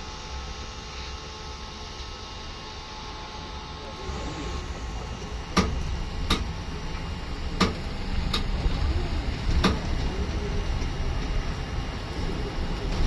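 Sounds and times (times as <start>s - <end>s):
bus engine and road rumble: 3.8s - 13.0s.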